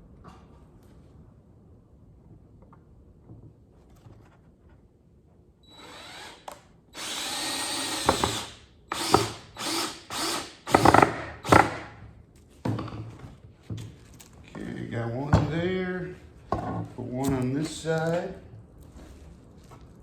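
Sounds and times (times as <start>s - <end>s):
power drill driving screw into wood: 5.7s - 12.0s.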